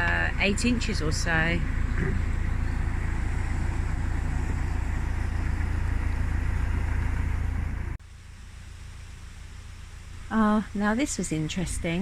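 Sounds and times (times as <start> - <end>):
boat engine low rumble: 0.0 - 12.0.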